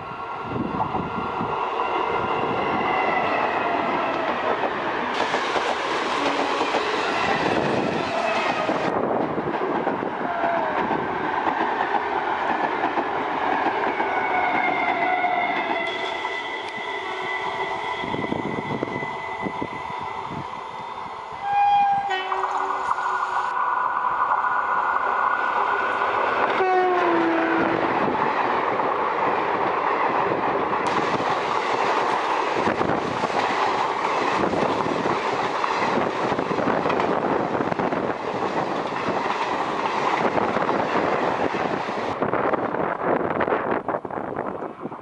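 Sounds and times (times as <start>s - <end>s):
train coaches clattering past: 0.8s - 20.5s, 21.4s - 42.2s
locomotive horn: 15.8s - 18.9s, 21.4s - 22.9s, 26.6s - 27.8s.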